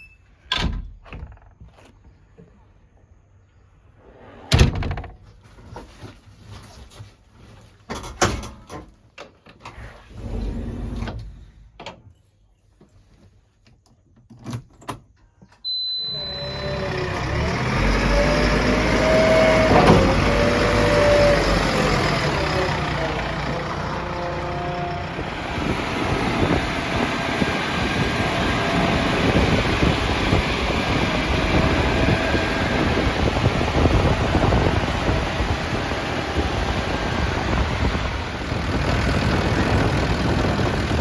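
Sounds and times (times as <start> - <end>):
diesel machine engine running: 16.0 - 41.0.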